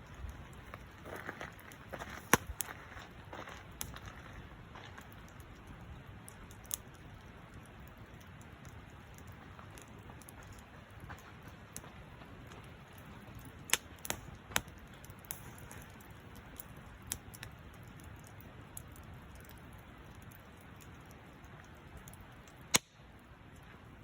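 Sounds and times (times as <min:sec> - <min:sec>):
steady low hiss: 0:00.0 - 0:24.0
wood fire crackling: 0:00.0 - 0:24.0
sharp fire pops: 0:01.5 - 0:02.8, 0:13.0 - 0:23.2.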